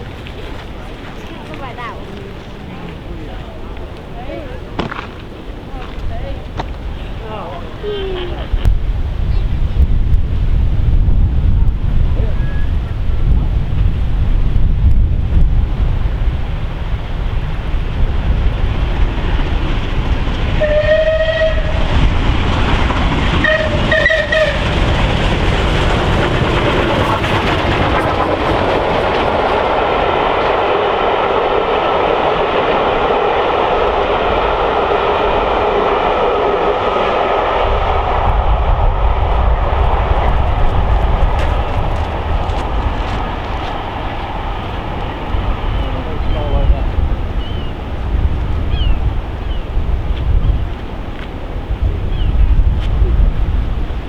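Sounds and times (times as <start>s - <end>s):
train wheels clattering over rails: 12.6s - 47.6s
steam locomotive whistle blasts: 20.6s - 21.8s, 23.4s - 24.7s.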